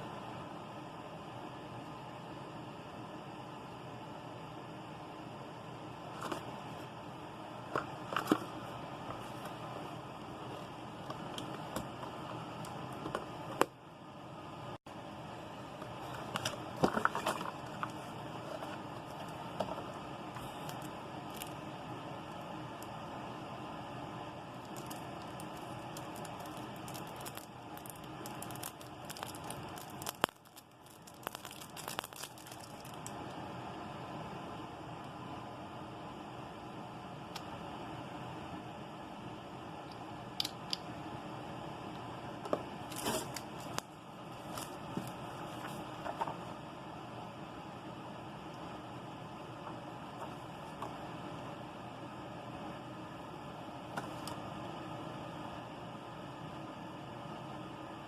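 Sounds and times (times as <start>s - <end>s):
packaging clicks and crackles: 15.8s - 21.6s, 24.6s - 33.2s, 42.9s - 43.9s.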